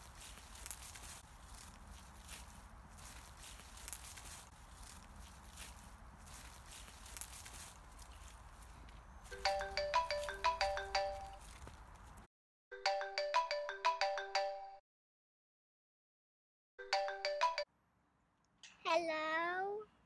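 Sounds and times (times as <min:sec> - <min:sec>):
phone ringtone chiming melody: 0:09.3 - 0:11.4, 0:12.7 - 0:14.8, 0:16.8 - 0:17.7.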